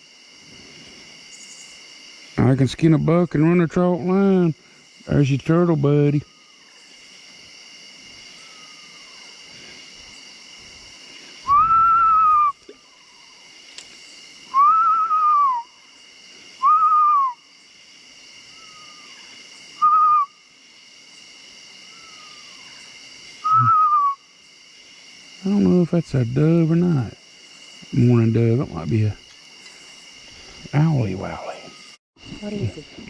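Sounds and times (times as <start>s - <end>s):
high insect drone: 0.0s - 33.0s
faint answering bird calls: 8.3s - 9.4s, 14.5s - 16.0s, 18.5s - 20.4s, 21.9s - 24.2s
person whistling hoot-like notes: 11.5s - 12.8s, 14.5s - 15.7s, 16.6s - 17.4s, 19.8s - 20.3s, 23.4s - 24.2s.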